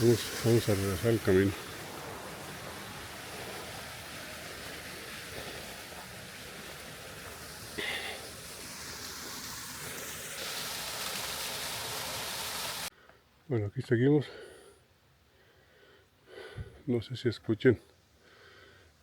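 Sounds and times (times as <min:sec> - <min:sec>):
creek water rushing over cascade: 0:00.0 - 0:12.9.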